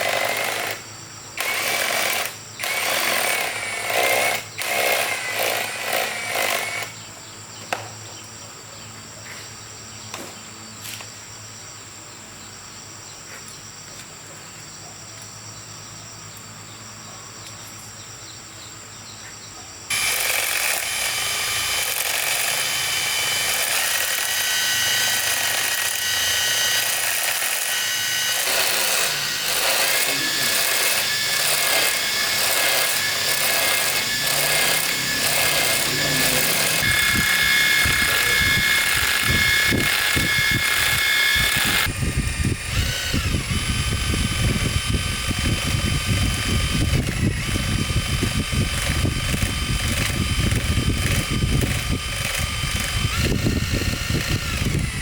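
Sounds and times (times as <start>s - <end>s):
bursts of tool noise: 0.0s - 7.0s, 19.9s - 55.0s
power tool running steadily: 0.0s - 7.0s, 19.9s - 55.0s.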